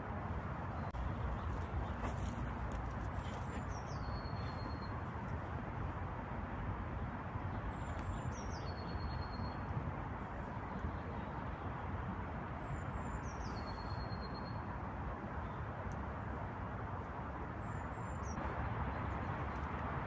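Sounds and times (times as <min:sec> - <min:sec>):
songbird singing: 0:00.7 - 0:05.4, 0:07.4 - 0:09.8, 0:12.5 - 0:14.8, 0:17.6 - 0:19.7.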